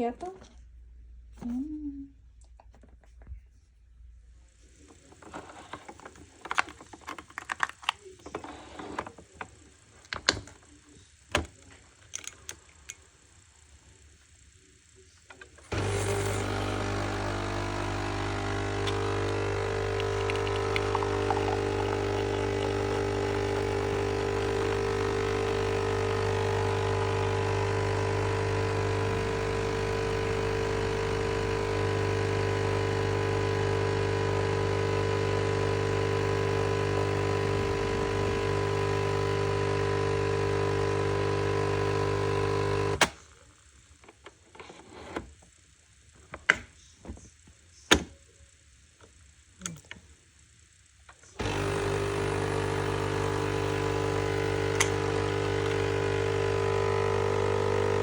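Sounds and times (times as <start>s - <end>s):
coffee machine pump humming: 15.4s - 43.2s, 51.2s - 58.0s.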